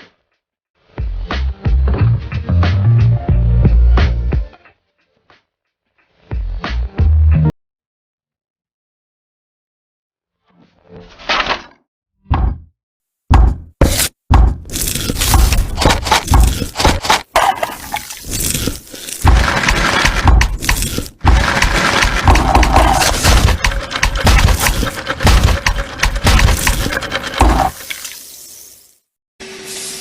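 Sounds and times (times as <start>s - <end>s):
sharp cracking and crunching: 14.7s - 27.8s.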